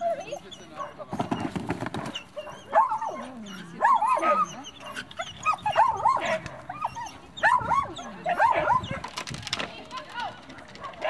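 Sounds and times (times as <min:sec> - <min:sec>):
dog barking and yipping: 0:00.0 - 0:01.1, 0:02.0 - 0:09.1.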